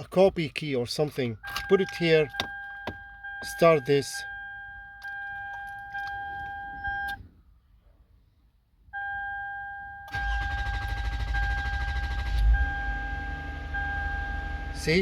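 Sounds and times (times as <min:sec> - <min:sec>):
car engine cranking and starting: 0:10.1 - 0:15.0.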